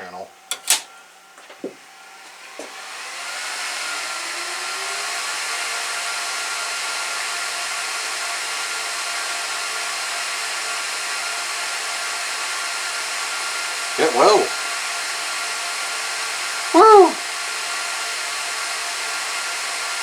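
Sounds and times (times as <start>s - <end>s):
switch click: 0.5s - 0.9s
server cooling fans whining: 14.0s - 14.6s.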